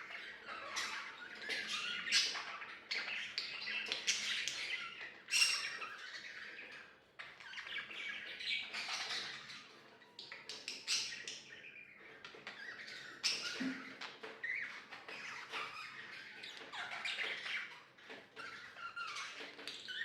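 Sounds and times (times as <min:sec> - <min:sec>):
budgerigars chattering and chirping: 0:00.0 - 0:20.0.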